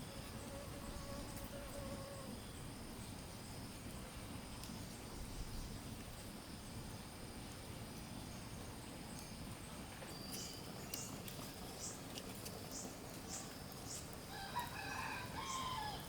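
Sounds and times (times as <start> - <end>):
rooster crowing: 14.3 - 16.0.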